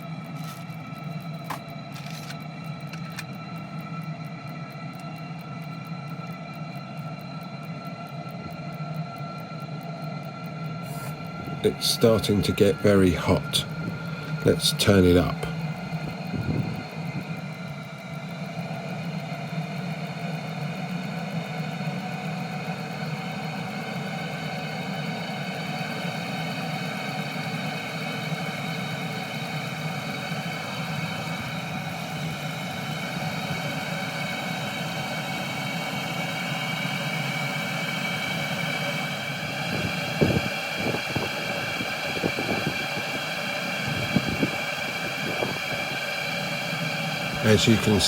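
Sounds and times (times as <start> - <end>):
air heater hum and whine: 0.0 - 48.0.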